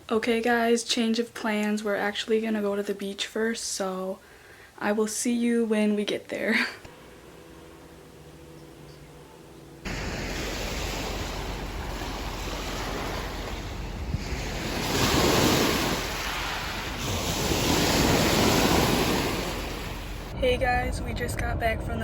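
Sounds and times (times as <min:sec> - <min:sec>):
ocean waves washing in: 0:09.8 - 0:20.4
wind buffeting microphone: 0:09.9 - 0:22.0.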